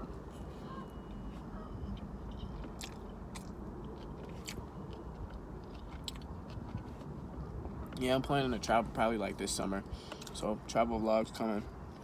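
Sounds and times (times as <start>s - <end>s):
person chewing food: 0.2s - 7.9s.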